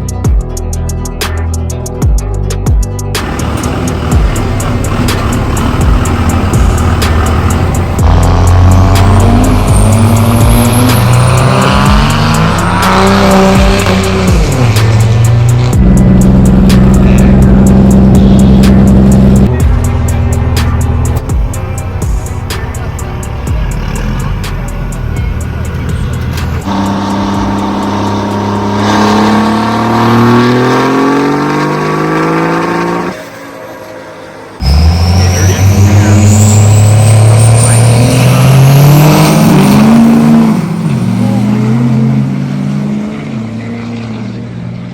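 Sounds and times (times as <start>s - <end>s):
music with steady beat: 0.0s - 30.8s
diesel truck engines revving: 2.4s - 44.9s.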